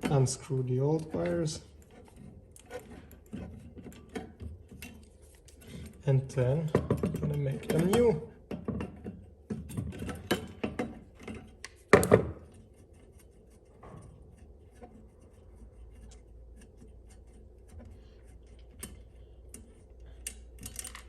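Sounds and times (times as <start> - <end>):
tools clattering: 0.0 - 12.5.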